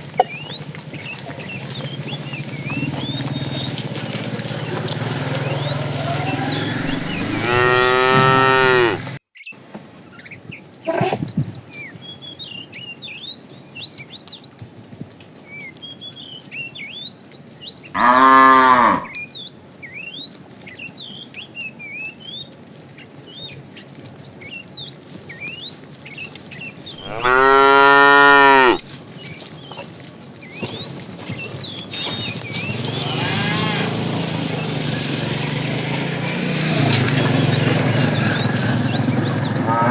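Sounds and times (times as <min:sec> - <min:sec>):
bird chirps: 0:00.0 - 0:03.9, 0:04.6 - 0:09.5
cow mooing: 0:05.9 - 0:09.2, 0:18.0 - 0:19.2, 0:27.0 - 0:28.8, 0:32.8 - 0:34.7, 0:39.4 - 0:39.9.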